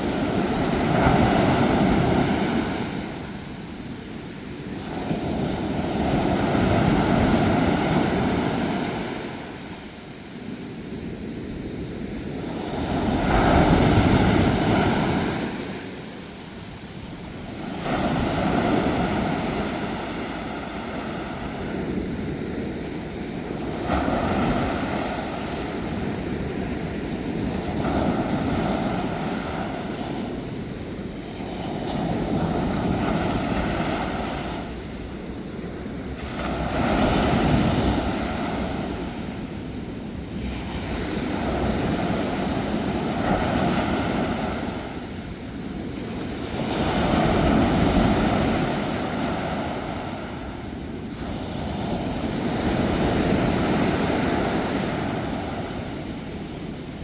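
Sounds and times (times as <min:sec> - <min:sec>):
sea waves washing onto shore: 0:00.0 - 0:57.0.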